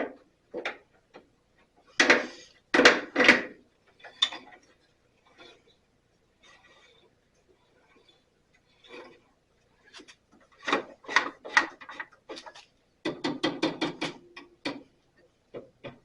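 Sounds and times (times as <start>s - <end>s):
knocks clicks and scrapes: 7.9s - 14.9s.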